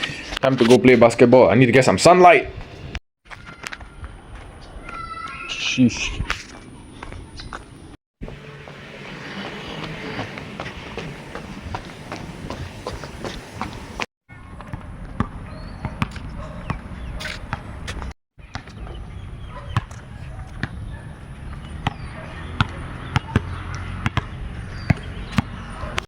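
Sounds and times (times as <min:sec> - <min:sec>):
basketball bouncing: 0:14.6 - 0:19.0, 0:19.8 - 0:25.6.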